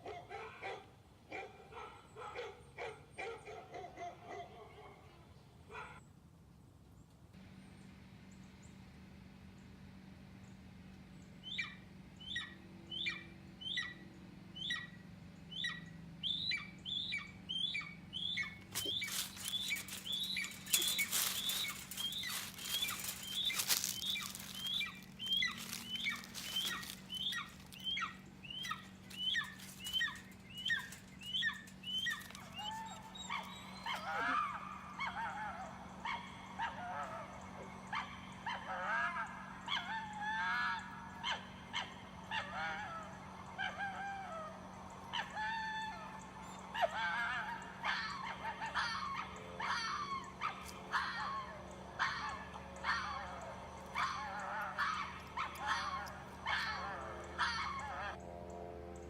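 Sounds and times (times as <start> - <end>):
bird chirping: 11.4 - 34.3
wavering sliding bird calls: 15.6 - 34.4
crackling noise: 18.6 - 27.8.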